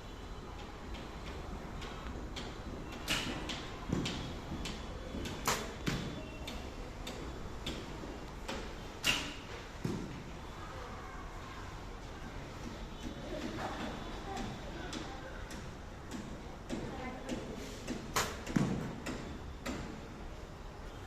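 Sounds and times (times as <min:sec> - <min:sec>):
bow releasing arrow: 0:09.0 - 0:09.4.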